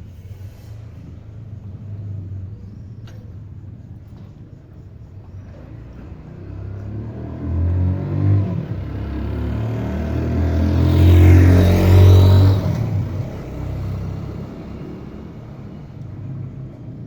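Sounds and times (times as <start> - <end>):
motorcycle engine revving: 5.3 - 17.0.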